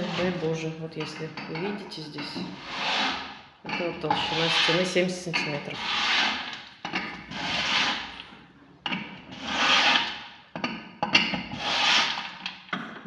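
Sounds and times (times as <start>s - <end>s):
scraping rubbing strokes: 0.0s - 0.8s, 2.2s - 8.4s, 9.3s - 10.2s, 11.5s - 12.4s.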